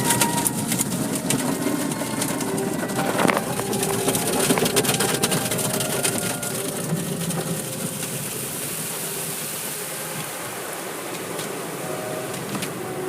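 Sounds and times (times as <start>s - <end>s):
car wash spray hiss: 6.6s - 12.8s.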